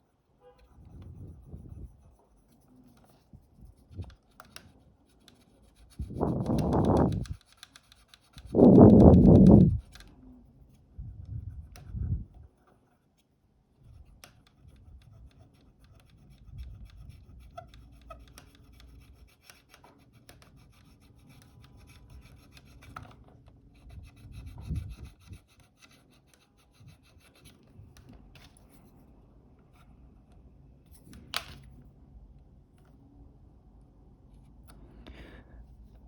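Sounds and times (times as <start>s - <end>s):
hand tool scraping cable: 5.2s - 10.1s.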